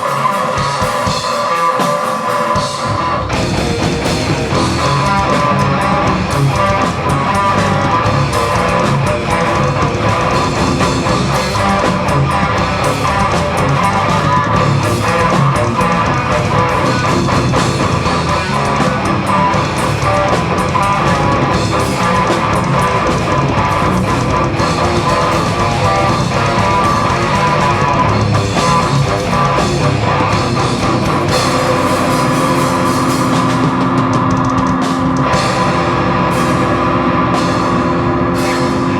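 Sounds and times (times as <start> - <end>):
distorted electric guitars: 0.0 - 38.9
drum kit: 0.0 - 38.9.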